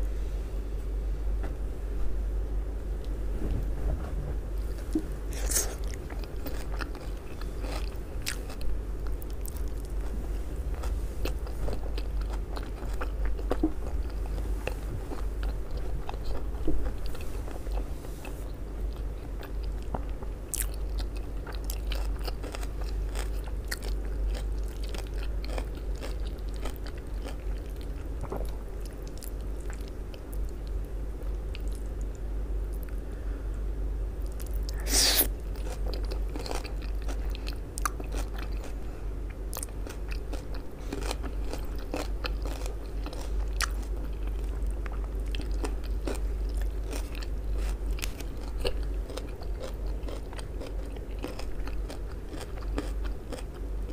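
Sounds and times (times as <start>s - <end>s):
low hum: 0.0s - 53.9s
crunching raw cabbage: 39.5s - 53.9s.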